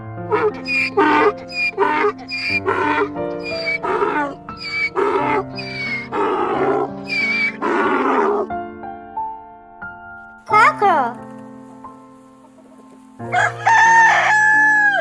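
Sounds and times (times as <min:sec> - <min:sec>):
background music: 0:00.0 - 0:15.0
donkey braying: 0:00.3 - 0:08.5, 0:13.3 - 0:15.0.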